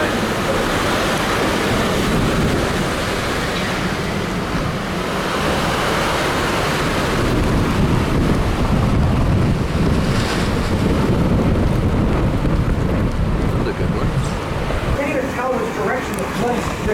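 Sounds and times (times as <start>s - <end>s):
strong wind rushing: 0.0s - 16.9s
wind buffeting microphone: 0.0s - 16.9s.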